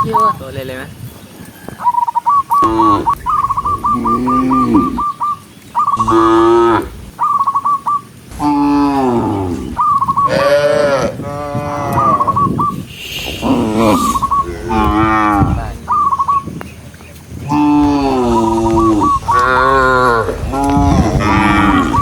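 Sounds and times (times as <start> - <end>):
high chirping notes: 1.9 - 10.5, 11.7 - 22.0
cows mooing: 2.6 - 5.2, 6.0 - 7.2, 8.3 - 22.0.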